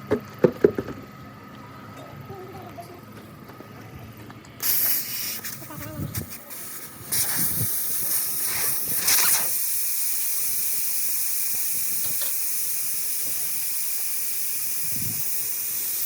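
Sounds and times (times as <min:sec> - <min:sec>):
pressurized air hissing: 0:04.6 - 0:16.0.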